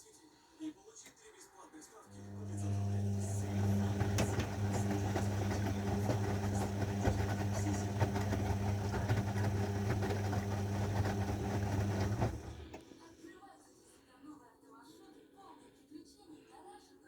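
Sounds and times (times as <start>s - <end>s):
washing machine motor hum: 2.1s - 12.9s
tumbling load rattling: 3.3s - 12.8s.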